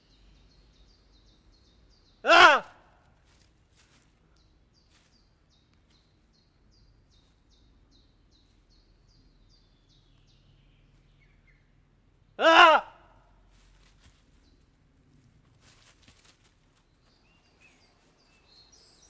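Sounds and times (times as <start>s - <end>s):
small bird chirping: 4.3s - 11.7s, 16.8s - 19.0s.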